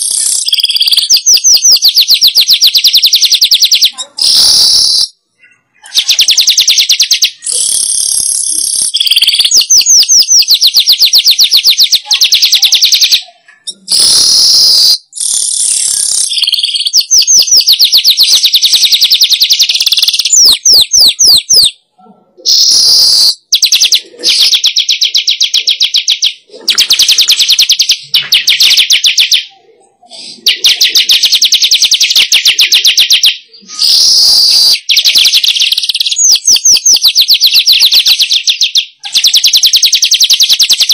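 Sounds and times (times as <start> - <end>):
weaver bird trilling song: 0.0 - 5.2, 6.0 - 21.8, 30.4 - 40.9.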